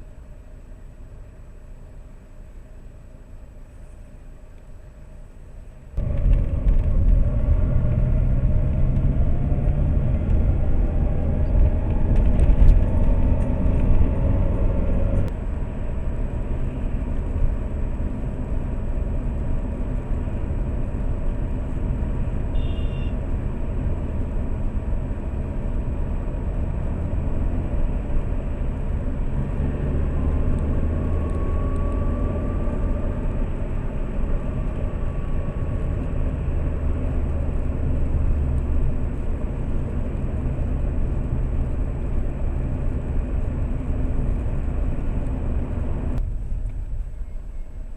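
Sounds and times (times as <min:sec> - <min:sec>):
road noise inside car: 0:00.0 - 0:47.9
car engine accelerating: 0:06.0 - 0:15.4, 0:23.6 - 0:46.2.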